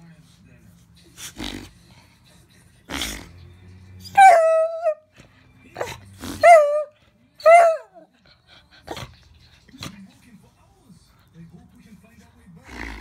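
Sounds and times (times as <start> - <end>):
dog whining: 4.0 - 5.0, 5.8 - 8.0.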